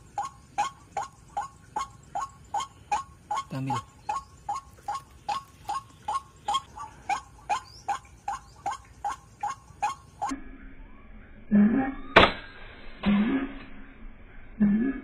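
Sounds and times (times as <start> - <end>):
sharp crack: 12.1 - 13.4.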